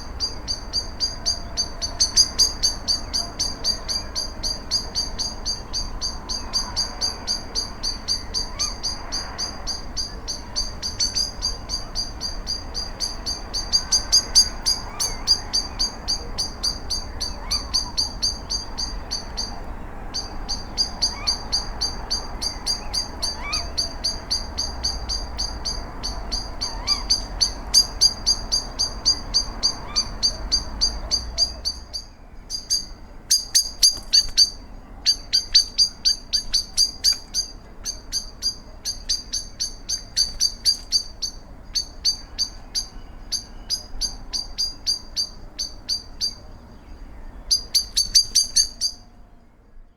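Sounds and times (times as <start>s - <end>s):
bird repeating high-pitched note: 47.5s - 49.0s.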